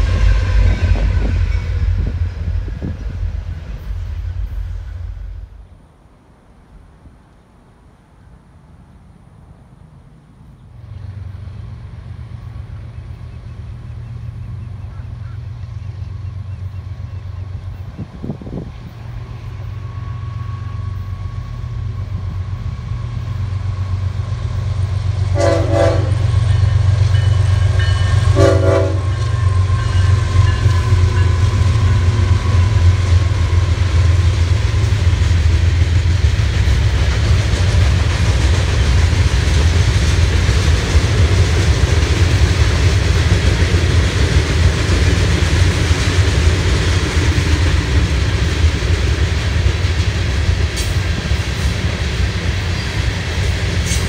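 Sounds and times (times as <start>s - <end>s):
train horn blasts: 0.0s - 3.0s, 18.5s - 34.2s
train wheels on rails: 0.0s - 5.8s, 10.8s - 54.0s
diesel locomotives rumbling: 0.0s - 54.0s.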